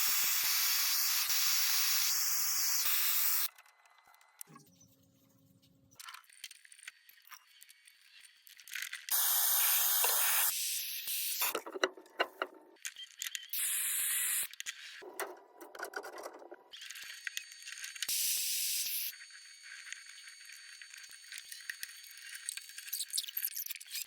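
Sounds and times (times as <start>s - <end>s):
soldering torch hissing: 0.0s - 3.5s, 9.1s - 11.5s.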